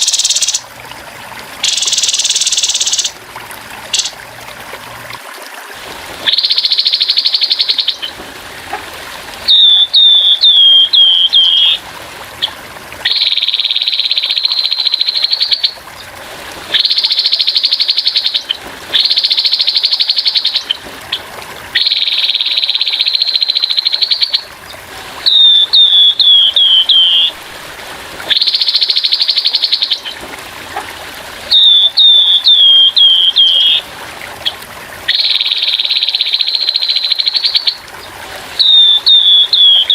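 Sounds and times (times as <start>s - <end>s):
bird harsh buzzy calls: 0.0s - 0.7s, 1.6s - 3.2s, 3.9s - 4.2s, 9.4s - 11.8s, 25.2s - 27.4s, 31.5s - 33.8s, 34.4s - 39.9s
trickling water: 0.0s - 39.9s.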